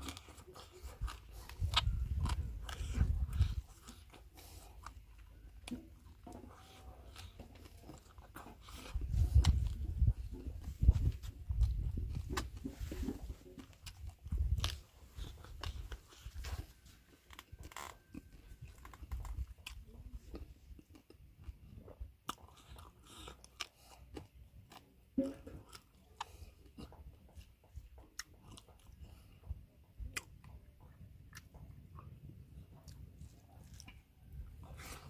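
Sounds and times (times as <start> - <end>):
person chewing food: 0.0 - 35.0
wet mouth clicks: 28.0 - 32.2.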